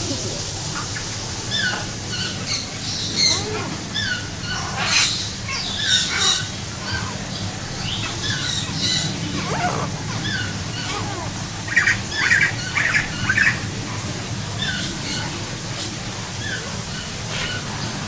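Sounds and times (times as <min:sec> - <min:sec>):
steady low hum: 0:00.0 - 0:18.0
harsh bird squawks: 0:08.0 - 0:13.6.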